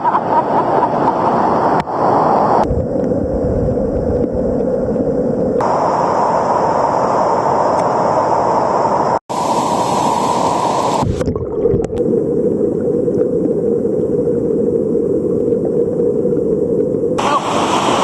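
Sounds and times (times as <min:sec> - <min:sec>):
river rapids rushing: 0:17.2 - 0:18.0.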